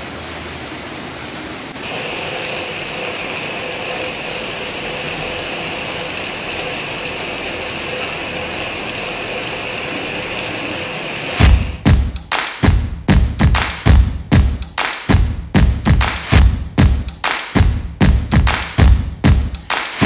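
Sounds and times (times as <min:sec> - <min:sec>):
rain falling through leaves: 0:00.0 - 0:11.8.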